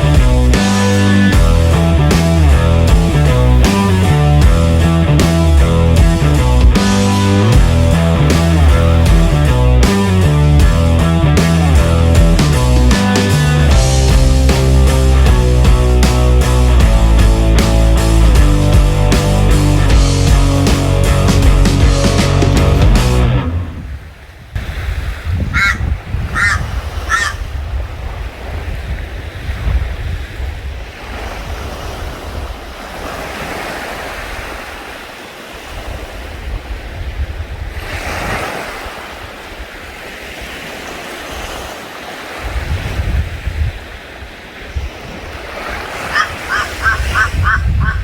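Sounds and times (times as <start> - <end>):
wind buffeting microphone: 0.0 - 12.9, 23.2 - 41.7, 42.3 - 48.0
short high calls: 46.1 - 48.0.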